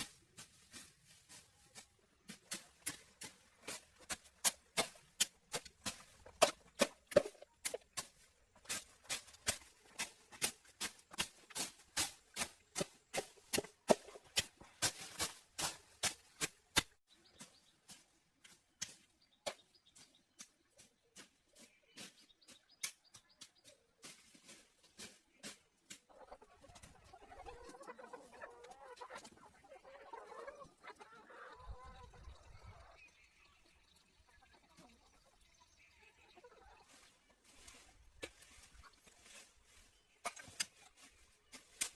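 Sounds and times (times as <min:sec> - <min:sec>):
animal-like sounds: 0:26.1 - 0:33.0.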